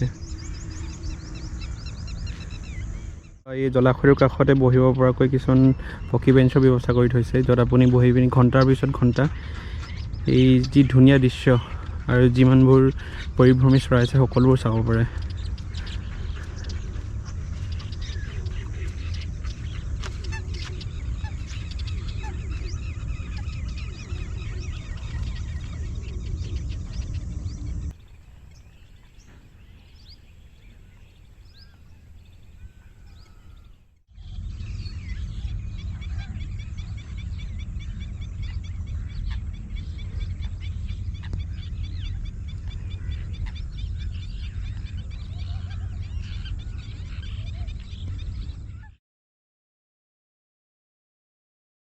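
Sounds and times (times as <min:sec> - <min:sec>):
waterbirds calling: 0:00.0 - 0:49.0
wind on microphone: 0:00.0 - 0:49.0.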